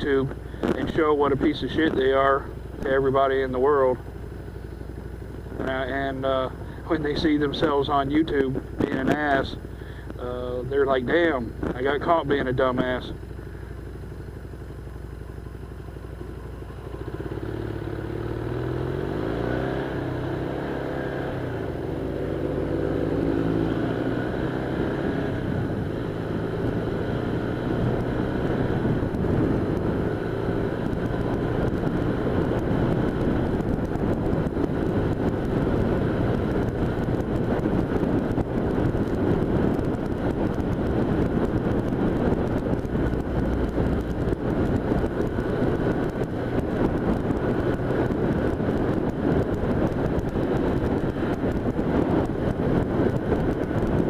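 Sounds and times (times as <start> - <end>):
wind rushing over microphone: 0.0 - 4.0, 17.0 - 54.0
motorcycle engine revving: 0.0 - 54.0.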